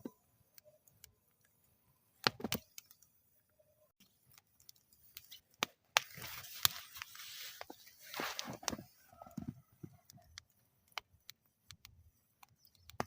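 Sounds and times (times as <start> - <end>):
wood fire crackling and popping: 2.2 - 3.1, 4.0 - 13.0
soft hissing flare: 6.0 - 9.1.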